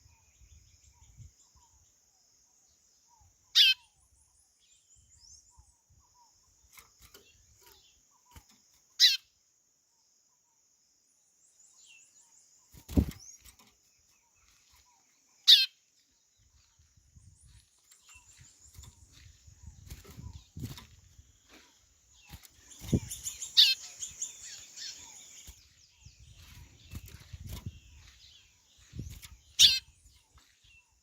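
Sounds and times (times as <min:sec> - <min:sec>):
faint chirps: 0:00.0 - 0:31.0.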